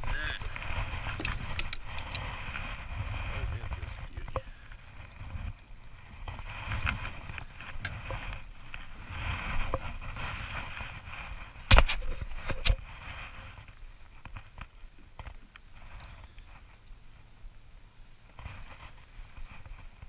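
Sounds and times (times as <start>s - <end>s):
handling rustle: 0.0s - 17.3s.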